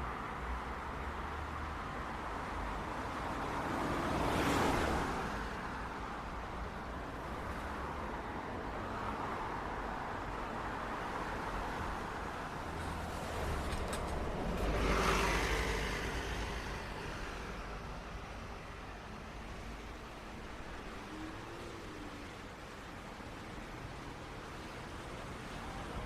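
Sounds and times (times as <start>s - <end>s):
hum of road traffic: 0.0s - 26.0s
vehicle going by: 12.8s - 17.7s.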